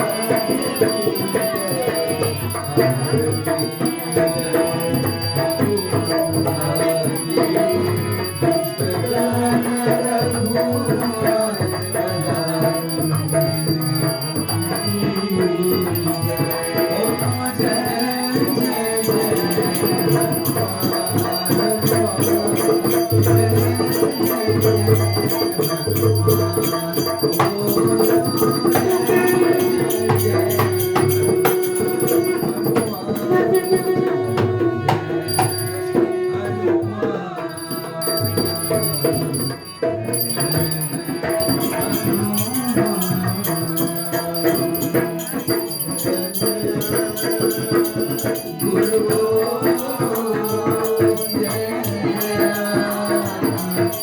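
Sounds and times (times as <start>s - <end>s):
devotional music: 0.0s - 54.0s
rattling hand percussion: 0.0s - 54.0s.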